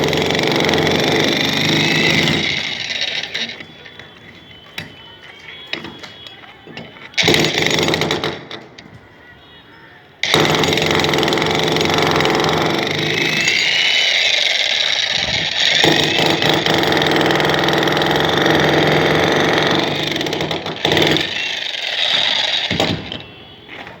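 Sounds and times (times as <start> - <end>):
concrete breaker running: 0.0 - 4.1, 10.2 - 23.2.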